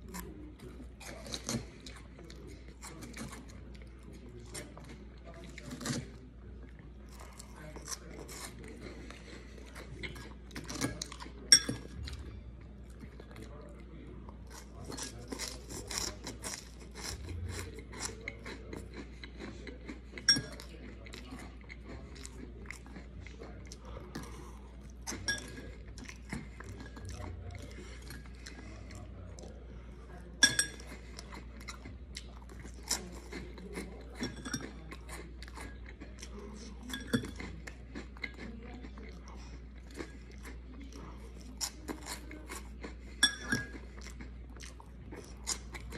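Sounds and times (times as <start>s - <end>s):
chewing and crunching: 0.0s - 45.9s
metal fork clinking on bowl: 11.5s - 11.9s, 20.2s - 20.7s, 25.2s - 25.7s, 30.4s - 30.9s, 34.2s - 34.8s, 36.9s - 37.4s, 43.2s - 43.8s.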